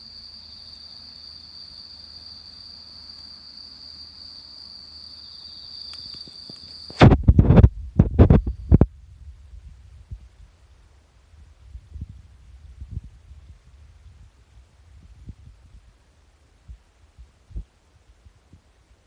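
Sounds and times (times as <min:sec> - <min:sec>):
insect trilling: 0:00.0 - 0:07.1.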